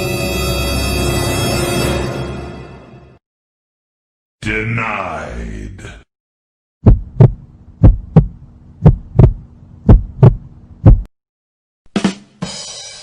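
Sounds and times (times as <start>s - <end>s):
heartbeat thumps: 6.8s - 11.1s
faint steady hum: 6.9s - 11.1s.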